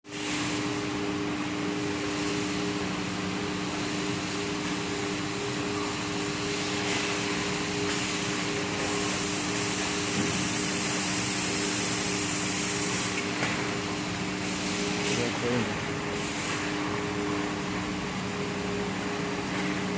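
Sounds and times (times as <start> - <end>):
motor and fan noise: 0.0 - 19.9
industrial machine hum: 0.1 - 19.9.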